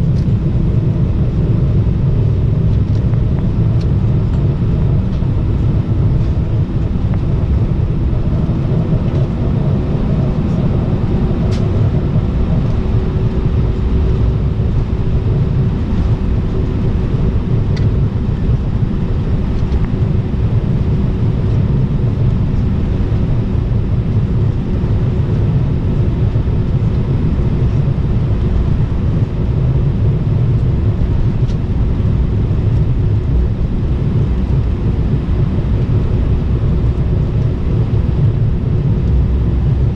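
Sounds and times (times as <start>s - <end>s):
faint steady hum: 0.0s - 39.9s
jet engine rumble: 0.0s - 39.9s.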